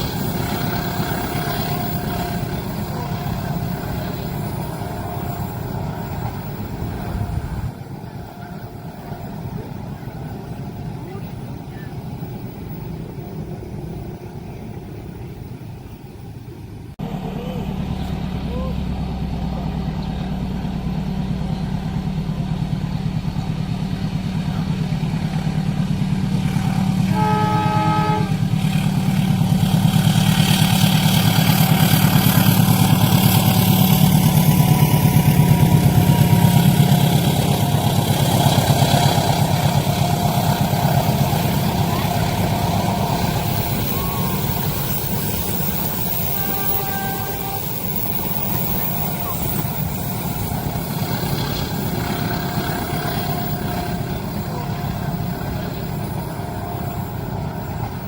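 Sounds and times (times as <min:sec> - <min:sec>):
train horn: 0:00.0 - 0:09.7, 0:26.4 - 0:58.0
train rumbling past: 0:00.0 - 0:58.0
wheels hissing on rail: 0:00.0 - 0:58.0.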